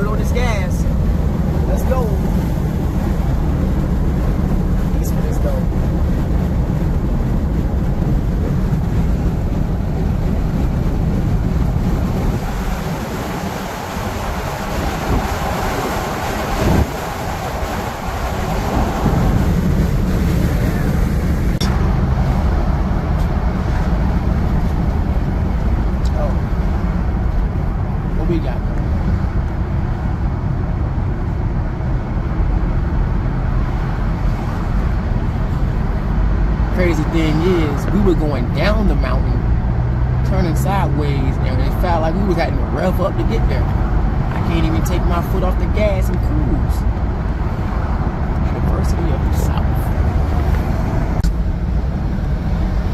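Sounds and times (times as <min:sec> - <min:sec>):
tyre and engine rumble: 0:00.0 - 0:52.9
wind noise: 0:00.0 - 0:52.9.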